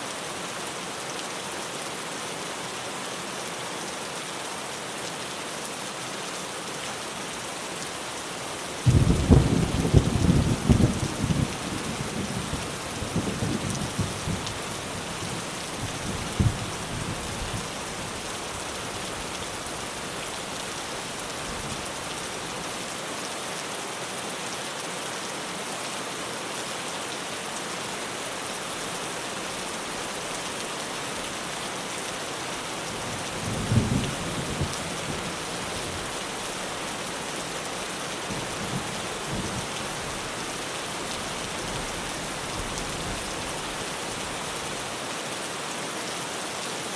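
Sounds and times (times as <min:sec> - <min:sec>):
heavy rain on a tin roof: 0:00.0 - 0:46.9
thunder rumbles: 0:08.8 - 0:14.4, 0:33.4 - 0:34.8.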